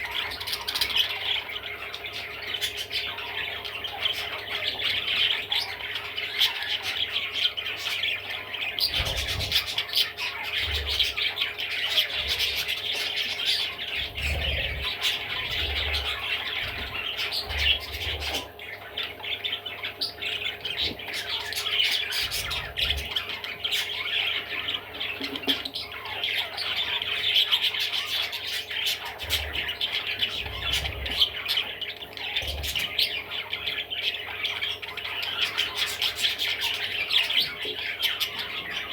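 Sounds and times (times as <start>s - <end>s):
budgerigar warbling and chattering: 0.0s - 38.9s.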